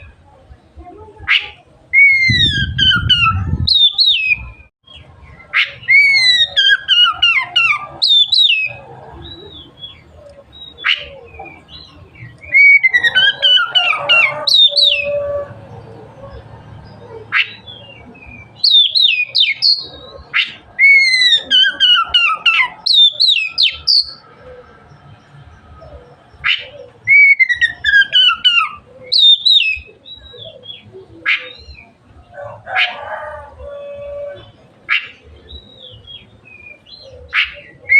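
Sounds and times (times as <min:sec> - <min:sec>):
sharp bird calls: 0:01.2 - 0:37.9
bird singing whistled phrases: 0:01.3 - 0:04.7, 0:12.4 - 0:15.2, 0:17.4 - 0:24.2, 0:26.5 - 0:31.9.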